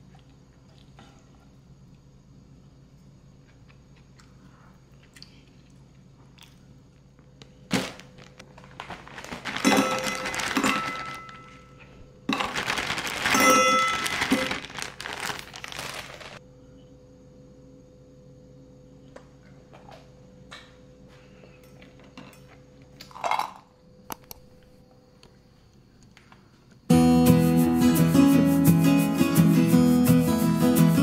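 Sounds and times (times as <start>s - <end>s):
crinkling and rustling: 7.7s - 16.4s.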